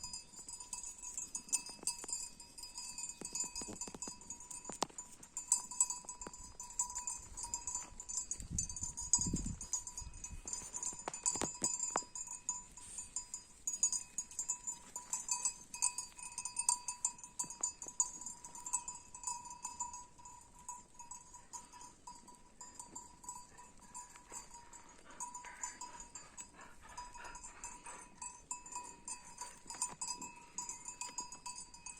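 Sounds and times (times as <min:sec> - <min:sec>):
animal bells jingling: 0:00.0 - 0:31.9.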